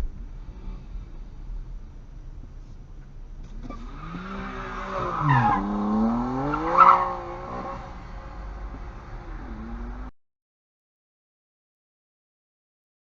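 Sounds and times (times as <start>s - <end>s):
car engine revving: 0.0s - 10.1s
tyre squeal: 4.7s - 7.8s.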